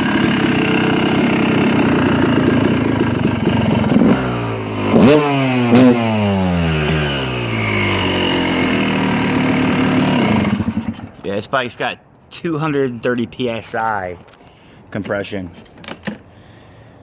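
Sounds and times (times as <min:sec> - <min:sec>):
dirt bike engine running: 0:00.0 - 0:11.2
engine throttle blips: 0:00.0 - 0:11.2.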